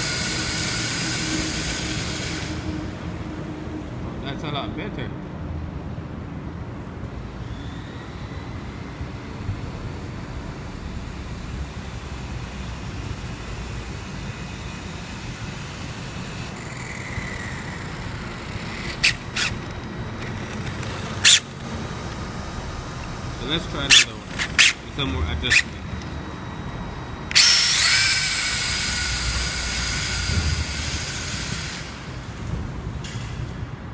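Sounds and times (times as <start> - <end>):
road traffic rumble: 0.0 - 33.9
faint rising whine: 7.1 - 33.4.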